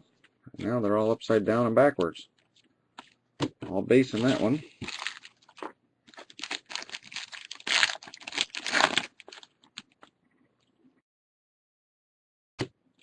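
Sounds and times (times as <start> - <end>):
wrapper crinkling and tearing: 4.1 - 10.1.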